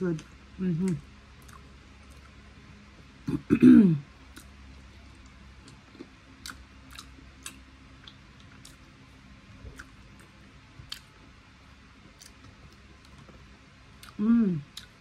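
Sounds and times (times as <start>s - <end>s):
person chewing: 0.8s - 3.1s, 4.3s - 9.0s, 9.6s - 11.3s, 12.0s - 15.0s.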